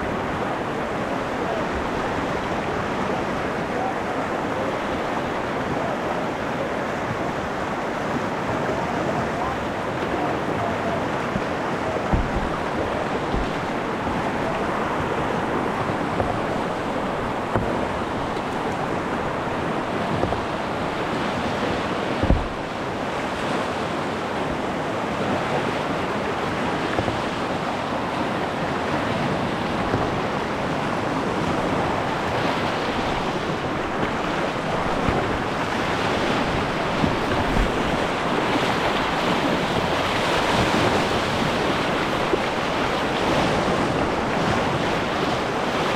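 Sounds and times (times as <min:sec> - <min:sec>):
river water rushing: 0:00.0 - 0:45.9
low thumps: 0:11.3 - 0:21.4, 0:22.1 - 0:22.8.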